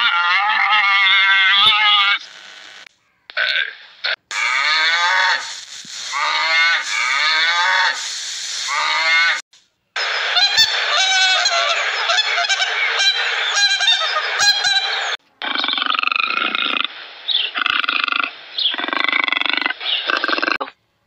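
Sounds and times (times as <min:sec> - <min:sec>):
sea lion barking: 0:00.0 - 0:02.2
elephants trumpeting: 0:04.3 - 0:08.1.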